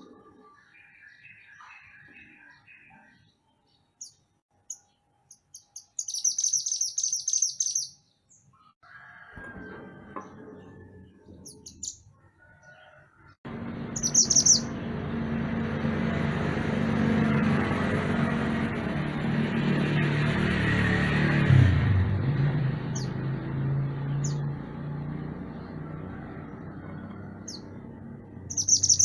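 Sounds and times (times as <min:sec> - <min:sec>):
songbird chirping and trilling: 0:00.0 - 0:08.8, 0:10.4 - 0:14.9, 0:25.2 - 0:29.0
loud steady rumble with hum: 0:13.5 - 0:25.8.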